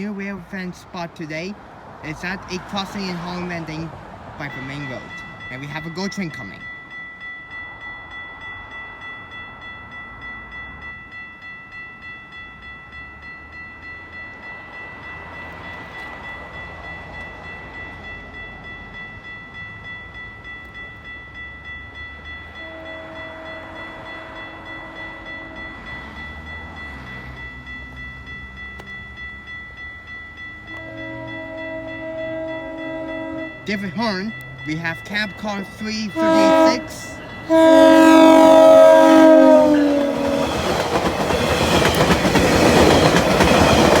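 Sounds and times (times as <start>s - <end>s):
level crossing warning bell: 0.0s - 44.0s
train horn blast: 22.6s - 23.9s, 30.7s - 33.7s, 36.1s - 40.7s
low train horn notes: 22.6s - 25.8s, 30.6s - 33.7s, 36.1s - 40.7s.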